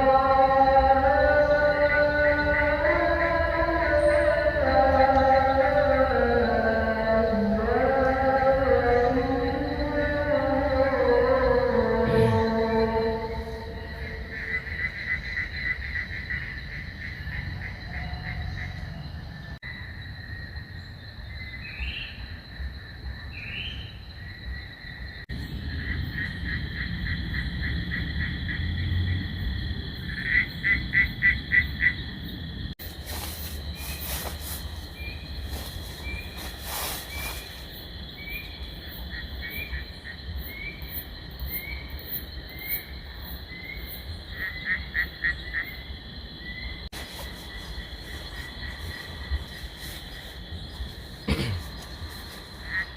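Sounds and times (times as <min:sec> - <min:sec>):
frogs calling in pulsed trains: 0:00.0 - 0:52.9
high insect drone: 0:00.0 - 0:52.9.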